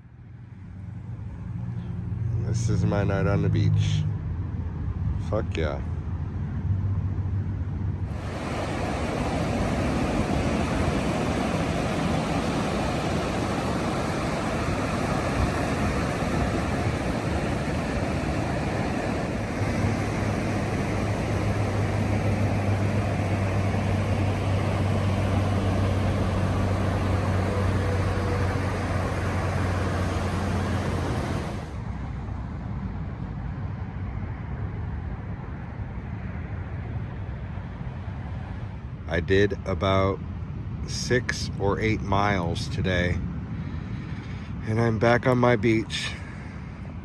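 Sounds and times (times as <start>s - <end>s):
low steady hum: 0.0s - 47.0s
wind: 0.0s - 47.0s
ocean surf: 8.0s - 32.2s, 37.8s - 47.0s.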